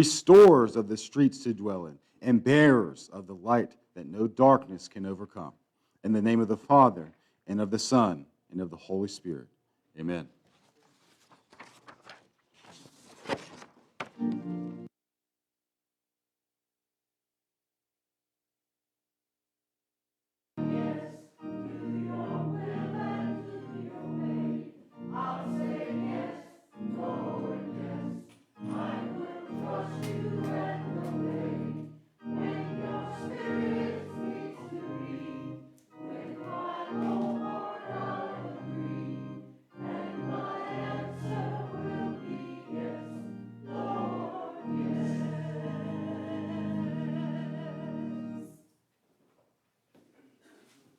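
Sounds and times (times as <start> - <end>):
choir singing: 20.6 - 48.6.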